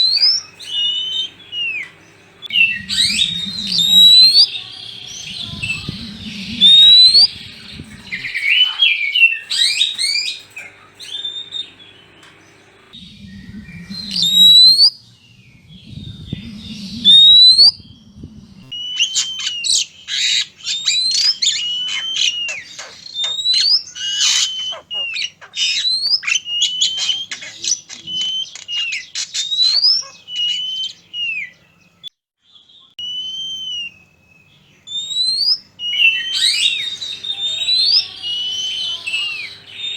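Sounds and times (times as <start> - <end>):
low rumbling noise: 0.0 - 8.8, 10.7 - 19.6
harsh clicking bird chatter: 0.0 - 13.0, 13.6 - 32.1, 34.5 - 39.9
bird whistled calls: 0.0 - 39.9.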